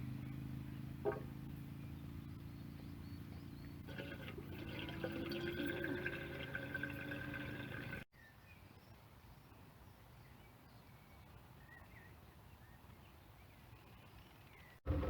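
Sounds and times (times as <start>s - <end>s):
soft bird chirps: 0.2s - 3.9s, 8.2s - 14.8s.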